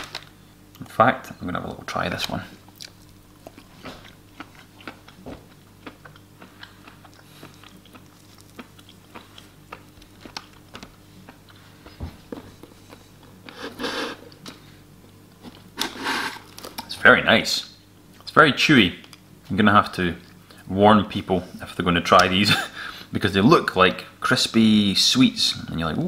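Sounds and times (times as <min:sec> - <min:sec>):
person chewing chewy food: 0:02.6 - 0:14.7.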